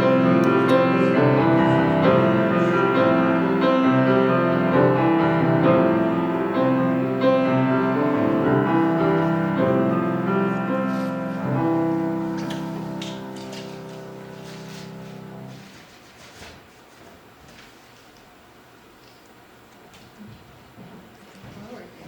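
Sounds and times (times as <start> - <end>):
piano playing slow chords: 0.0 - 16.0.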